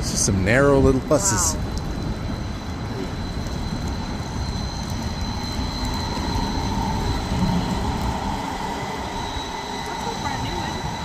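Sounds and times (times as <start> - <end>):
faint high whine: 0.0 - 11.0
large vehicle passing on wet street: 0.0 - 11.0.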